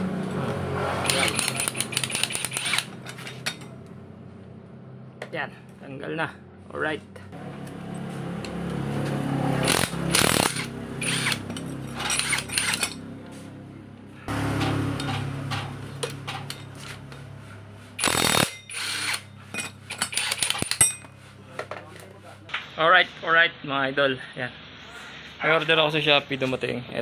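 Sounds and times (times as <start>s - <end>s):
impact wrench hammering: 1.0s - 3.6s, 9.6s - 13.0s, 18.0s - 21.1s.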